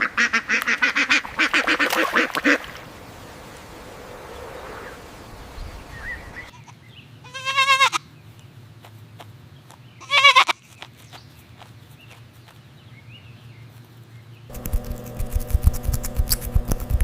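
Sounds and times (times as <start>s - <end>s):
goat bleating: 6.5s - 8.1s, 10.0s - 10.8s.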